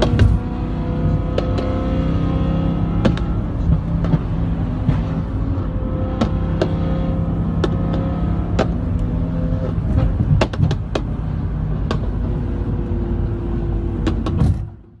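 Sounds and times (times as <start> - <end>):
exhaust pops and crackles: 0.0 - 0.5, 3.0 - 5.4, 6.1 - 6.9, 7.5 - 12.3, 14.0 - 14.8
car engine running: 0.0 - 15.0.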